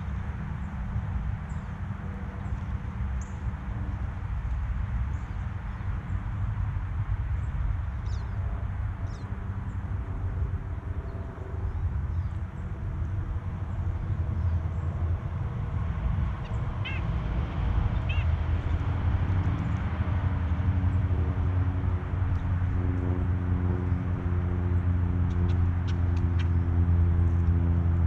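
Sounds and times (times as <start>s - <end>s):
short bird calls: 16.8s - 17.1s, 18.0s - 18.3s.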